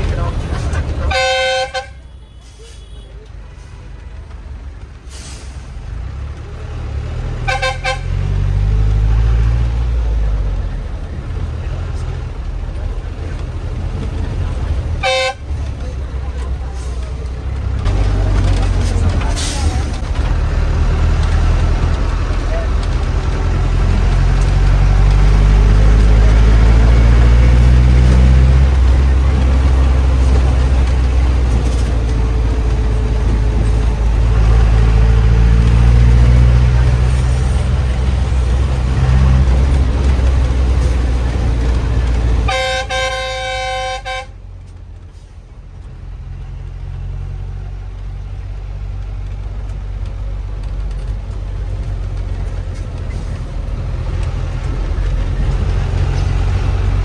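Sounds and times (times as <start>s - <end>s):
bus engine droning: 0.0s - 57.0s
vehicle horn honking: 1.0s - 3.1s, 7.5s - 8.3s, 15.0s - 15.5s, 42.5s - 44.4s.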